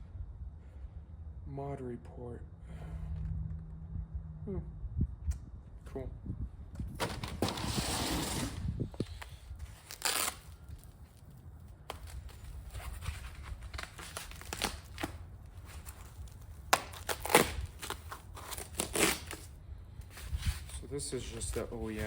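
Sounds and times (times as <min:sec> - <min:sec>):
packaging rustling: 0:09.2 - 0:19.5.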